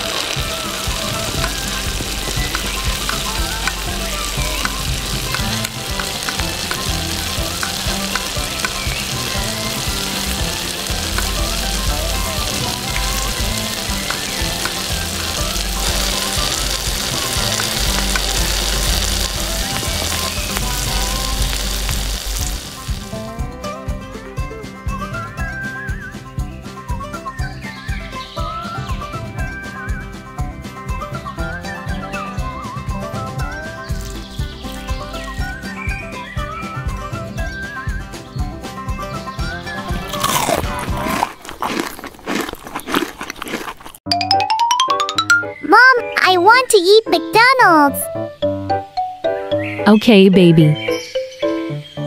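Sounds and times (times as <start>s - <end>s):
hot oil sizzling: 0.0s - 23.6s, 32.5s - 44.1s.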